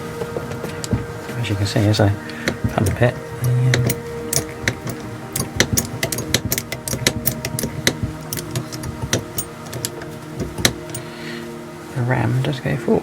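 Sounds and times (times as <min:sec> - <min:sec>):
trolley jack pump metallic clicks: 0:02.4 - 0:11.1.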